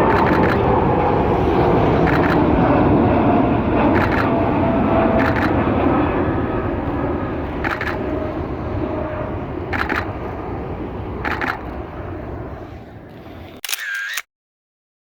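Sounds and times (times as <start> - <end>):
jet engines rumbling on takeoff: 0.0 - 14.2
camera shutter bursts: 0.1 - 0.6, 2.1 - 2.4, 4.0 - 4.3, 5.2 - 5.6, 7.6 - 8.0, 9.7 - 10.1, 11.2 - 11.6, 13.6 - 14.3.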